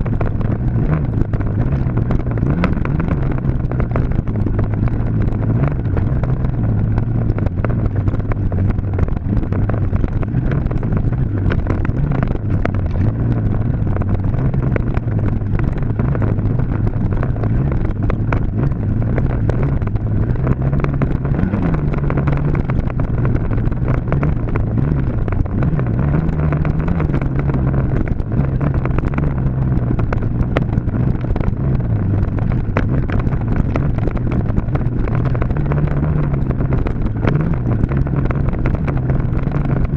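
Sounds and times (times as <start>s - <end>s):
dirt bike engine running: 0.0s - 39.9s
wind buffeting: 0.0s - 39.9s.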